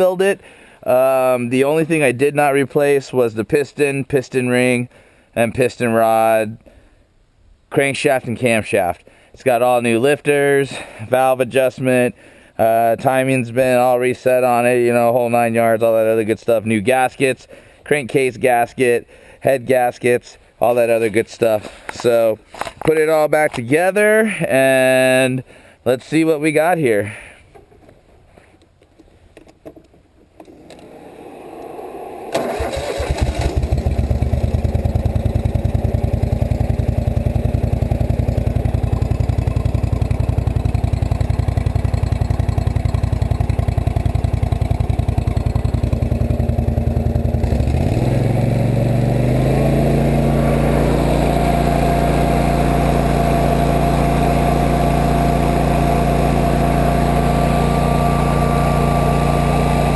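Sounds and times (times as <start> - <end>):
mower engine starting and running: 30.4 - 59.9.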